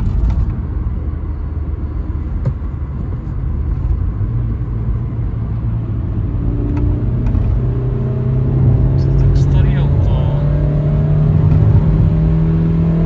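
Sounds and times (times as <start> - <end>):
low road rumble: 0.0 - 13.0
car engine pulling: 6.2 - 13.0.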